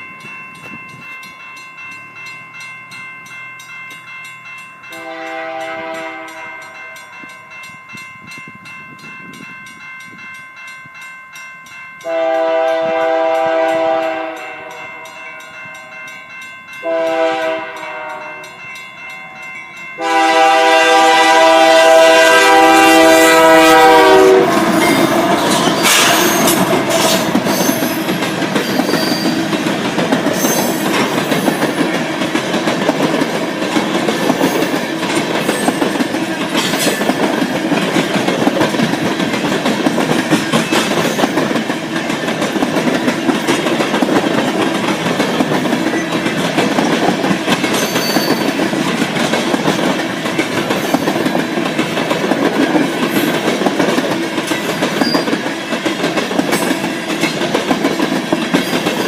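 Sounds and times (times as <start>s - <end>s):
freight train rolling past: 0.0s - 59.0s
wheels clicking over rail joints: 24.5s - 59.0s.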